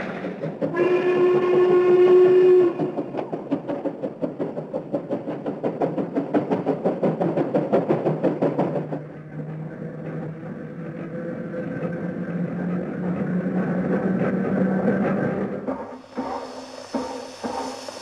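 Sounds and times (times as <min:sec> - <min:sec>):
steam locomotive chuffing: 0:00.0 - 0:18.0
electric train motor hum: 0:09.2 - 0:18.0.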